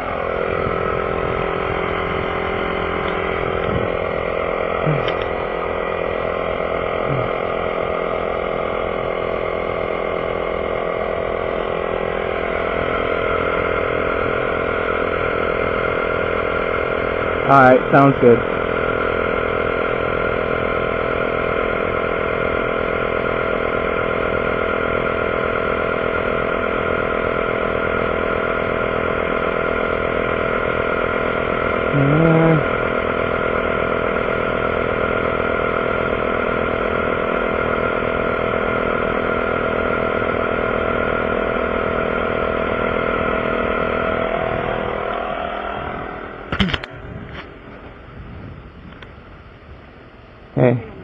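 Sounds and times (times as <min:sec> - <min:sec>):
air compressor running: 0:00.0 - 0:51.0.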